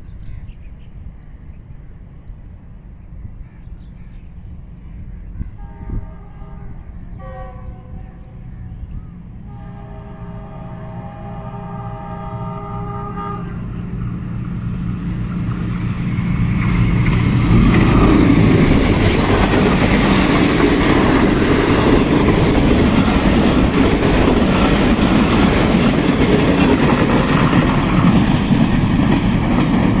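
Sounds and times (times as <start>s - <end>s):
train engine: 4.4s - 30.0s
train horn chord: 5.6s - 8.8s, 9.4s - 13.9s
train wheels clattering on rails: 15.3s - 30.0s.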